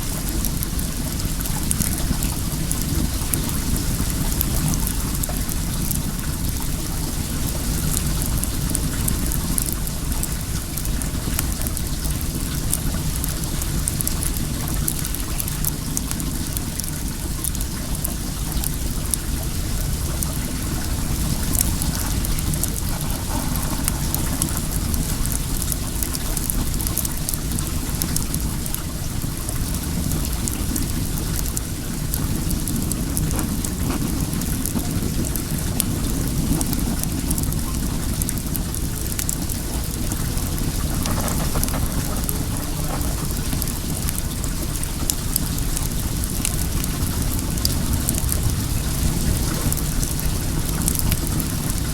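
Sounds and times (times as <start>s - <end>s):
bonfire crackling: 0.0s - 51.9s
water running: 19.4s - 29.5s, 39.6s - 45.1s.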